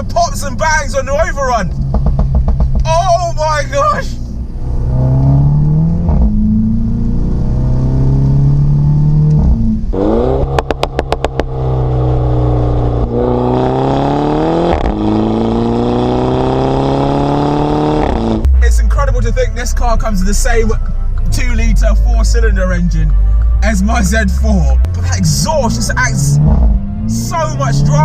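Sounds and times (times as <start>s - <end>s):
exhaust pops and bangs: 1.6s - 3.1s, 10.4s - 11.6s
car engine accelerating hard: 3.7s - 19.4s, 24.1s - 28.0s.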